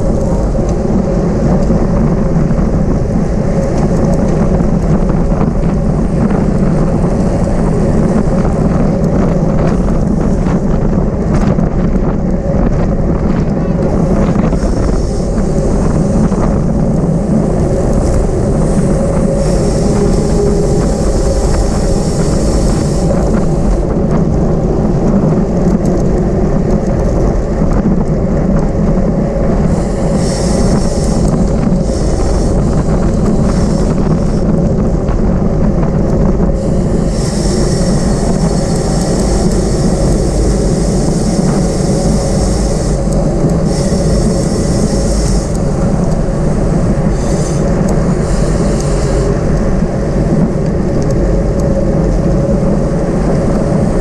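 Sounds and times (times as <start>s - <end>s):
wind rumble on microphone: 0.0s - 54.0s
high hiss: 14.4s - 23.7s, 36.6s - 45.8s.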